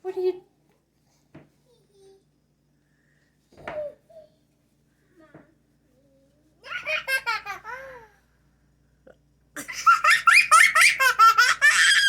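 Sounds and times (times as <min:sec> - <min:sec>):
toddler laughing: 0:06.6 - 0:08.2, 0:09.6 - 0:12.0.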